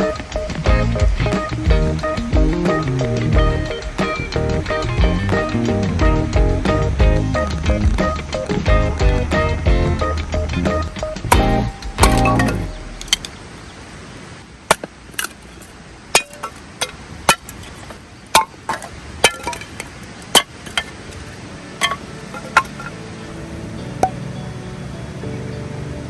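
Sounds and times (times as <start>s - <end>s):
hard objects knocking and clinking: 14.7s - 21.0s, 21.8s - 22.9s.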